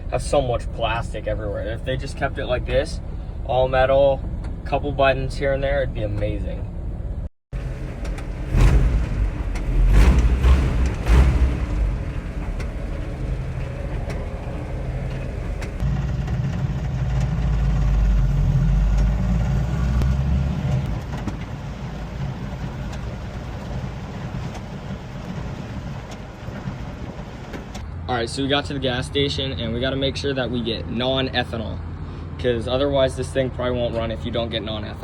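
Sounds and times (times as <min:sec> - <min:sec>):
pickup truck engine running: 0:00.0 - 0:27.8.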